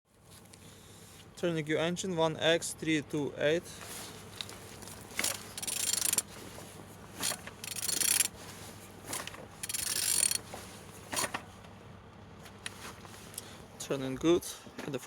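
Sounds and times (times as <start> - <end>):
engine turned over by hand whirring: 3.6 - 11.7.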